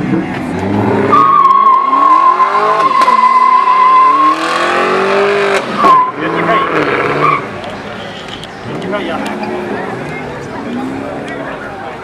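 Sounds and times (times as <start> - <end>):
car engine revving: 0.0 - 7.7
tyres squealing: 1.1 - 8.6.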